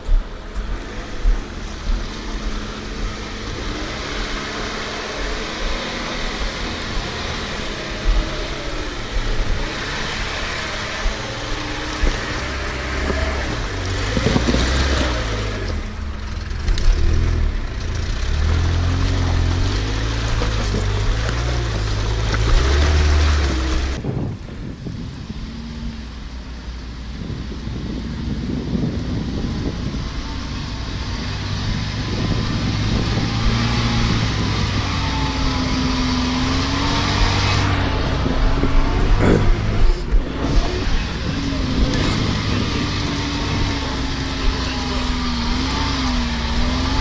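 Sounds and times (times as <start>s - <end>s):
steady rushing noise: 0.0s - 18.7s, 19.4s - 47.0s
off-road vehicle engine under load: 0.0s - 47.0s.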